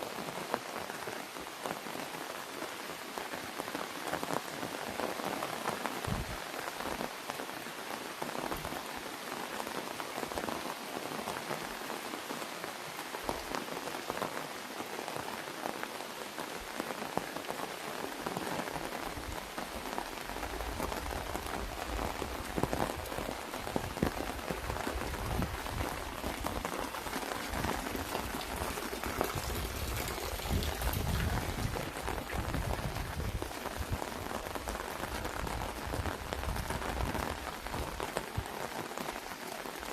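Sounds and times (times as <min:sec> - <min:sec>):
rain on an umbrella: 0:00.0 - 0:39.9.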